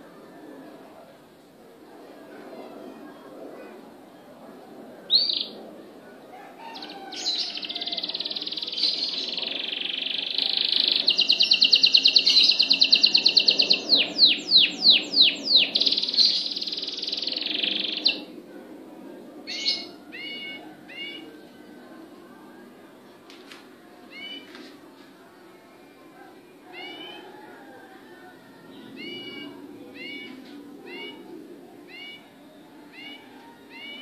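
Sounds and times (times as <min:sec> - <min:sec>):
songbird singing: 0:04.1 - 0:18.4, 0:19.4 - 0:34.0
bird calls: 0:06.7 - 0:18.3.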